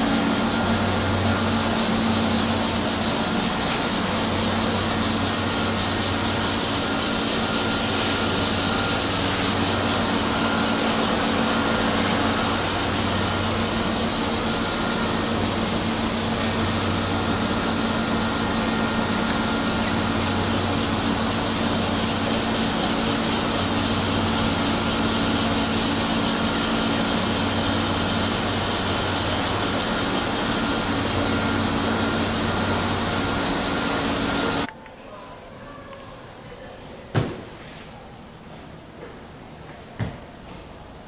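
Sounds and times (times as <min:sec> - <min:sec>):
loud even hiss: 0:00.0 - 0:34.7.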